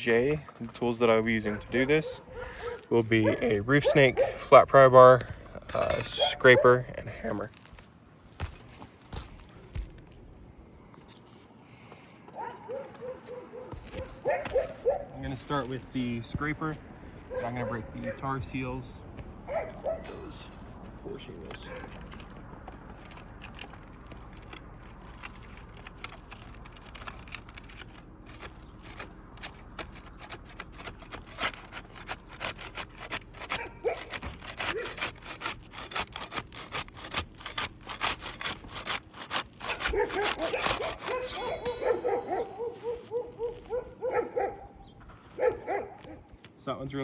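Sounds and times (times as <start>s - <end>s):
metal scraper scraping shingles: 0.0s - 7.7s, 13.2s - 18.8s, 19.7s - 46.0s
pitched squealing: 19.4s - 46.2s.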